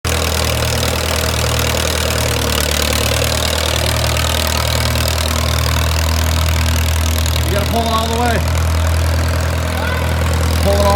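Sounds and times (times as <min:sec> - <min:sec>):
tractor engine idling: 0:00.0 - 0:10.9.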